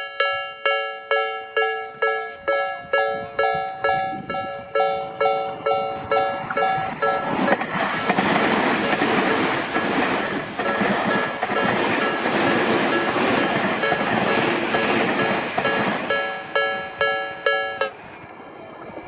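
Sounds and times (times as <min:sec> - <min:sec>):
level crossing warning bell: 0:00.0 - 0:08.2, 0:08.9 - 0:09.7, 0:10.6 - 0:18.0
train wheel and rail noise: 0:00.0 - 0:19.0.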